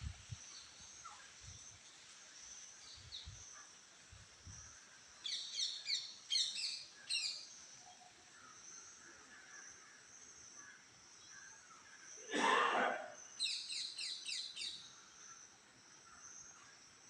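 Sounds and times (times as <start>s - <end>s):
bird chirping: 4.5s - 12.3s, 13.2s - 17.0s.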